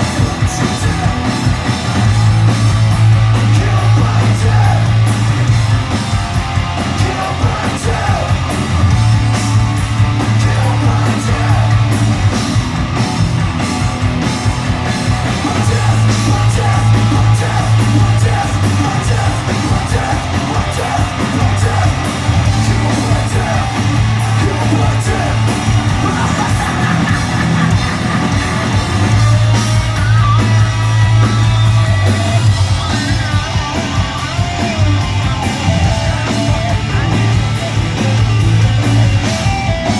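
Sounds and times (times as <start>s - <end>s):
bass line: 0.0s - 39.9s
distorted electric guitars: 0.0s - 39.9s
drums: 0.0s - 39.9s
person shouting vocals: 24.4s - 28.5s.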